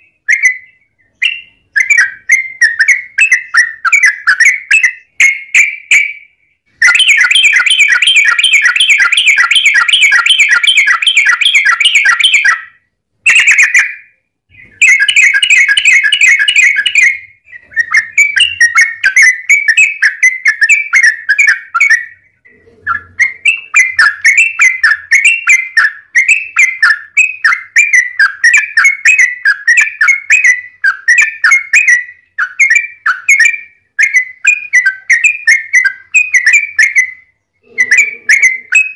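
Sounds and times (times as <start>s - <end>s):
bird chattering trills: 14.5s - 33.5s, 34.2s - 38.9s.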